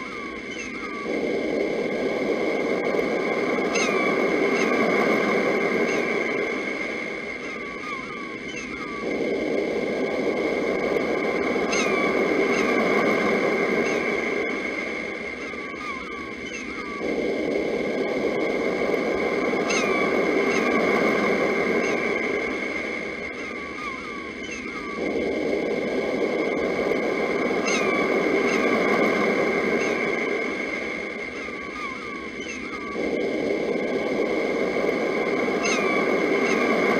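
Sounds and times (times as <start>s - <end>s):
birds chirping: 0.0s - 36.9s
sea surf: 0.0s - 36.9s
sea waves washing: 25.1s - 36.9s.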